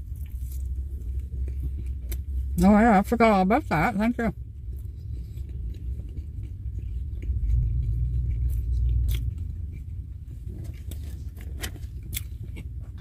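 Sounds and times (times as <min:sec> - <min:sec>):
person chewing food: 0:00.0 - 0:02.6, 0:04.4 - 0:13.0
low rumble: 0:00.0 - 0:13.0.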